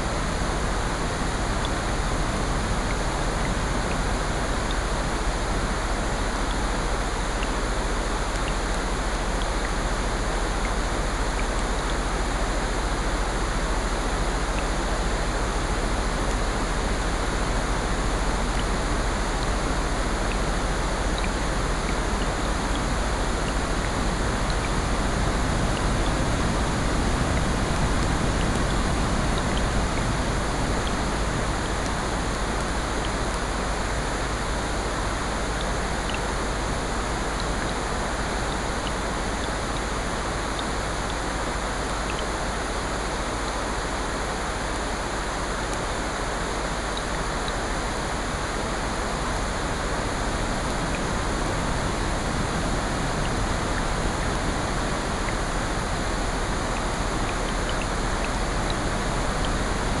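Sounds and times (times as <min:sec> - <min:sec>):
rain: 0:00.0 - 1:00.0
ocean surf: 0:48.3 - 1:00.0.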